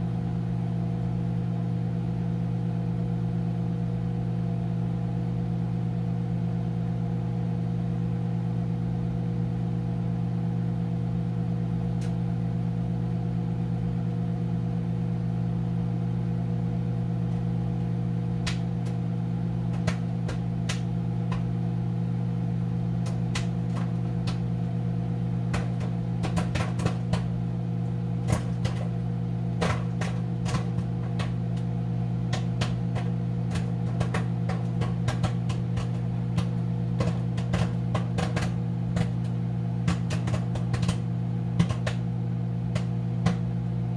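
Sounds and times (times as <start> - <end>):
microwave oven humming: 0.0 - 43.9
popcorn popping: 11.9 - 12.3, 17.2 - 43.9.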